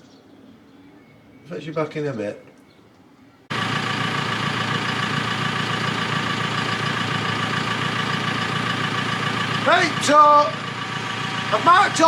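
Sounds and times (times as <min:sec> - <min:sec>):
engine idling: 0:03.5 - 0:12.0.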